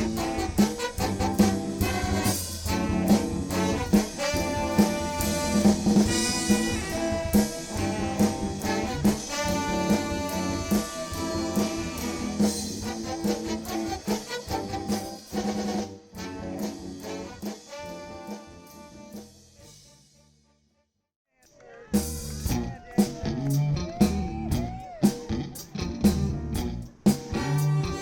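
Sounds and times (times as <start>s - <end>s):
drum kit steady beat: 0.0s - 19.8s, 21.9s - 28.0s
horn section playing: 0.0s - 20.5s, 27.3s - 28.0s.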